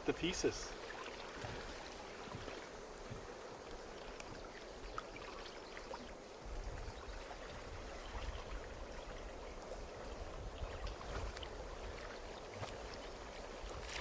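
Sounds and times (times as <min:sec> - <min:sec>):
water lapping gently: 0:00.0 - 0:14.0.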